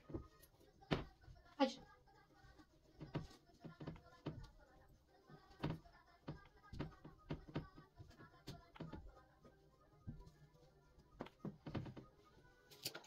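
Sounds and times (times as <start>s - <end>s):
household items knocking and clicking: 2.9s - 9.2s.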